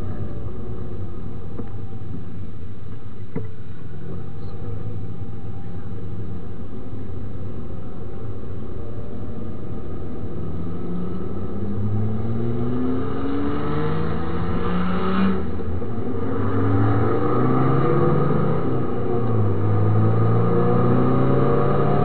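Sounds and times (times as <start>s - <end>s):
car engine accelerating: 9.4s - 22.0s.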